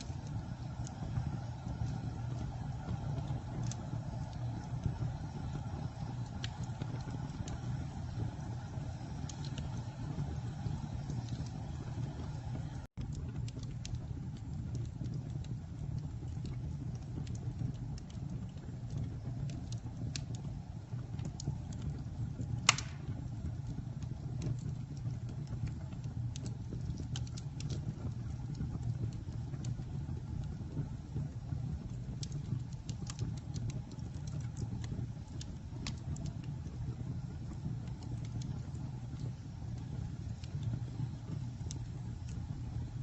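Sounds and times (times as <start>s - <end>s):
campfire crackling and snapping: 0.0s - 43.0s
loud fire pop: 22.6s - 23.3s.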